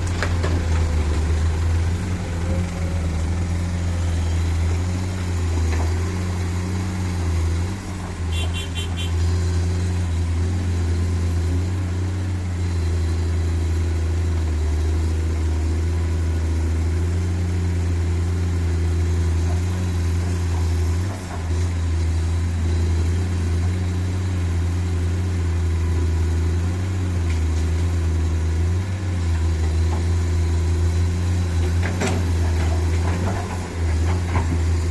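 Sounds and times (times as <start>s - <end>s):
truck engine humming: 0.0s - 14.3s.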